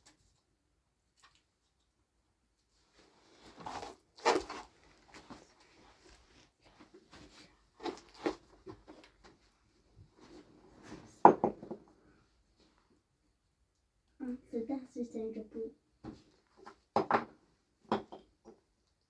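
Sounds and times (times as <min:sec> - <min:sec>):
objects knocking and bumping: 0:11.2 - 0:11.9, 0:16.1 - 0:18.6.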